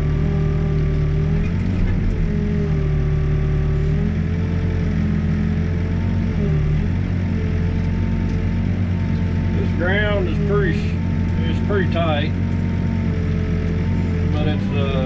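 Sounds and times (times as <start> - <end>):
backhoe diesel engine running: 0.0 - 15.0.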